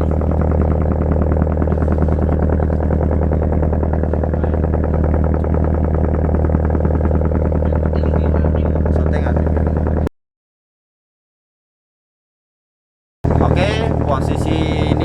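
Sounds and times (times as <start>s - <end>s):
boat diesel engine running: 0.0s - 10.1s, 13.2s - 15.0s.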